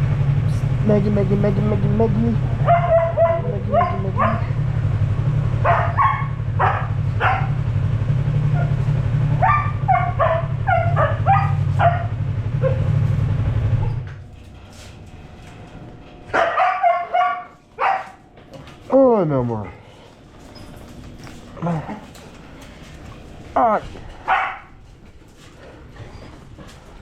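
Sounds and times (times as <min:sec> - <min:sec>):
motorcycle engine idling: 0:00.0 - 0:14.3
dog barking and yipping: 0:02.6 - 0:04.6, 0:05.5 - 0:07.7, 0:08.4 - 0:13.1, 0:16.3 - 0:18.3, 0:24.2 - 0:24.8.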